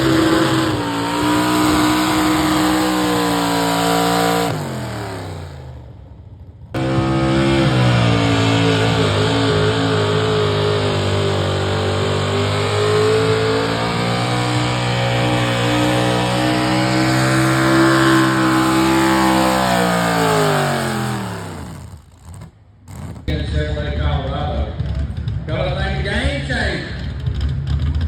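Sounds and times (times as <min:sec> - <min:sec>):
truck engine at full throttle: 0:00.0 - 0:25.5.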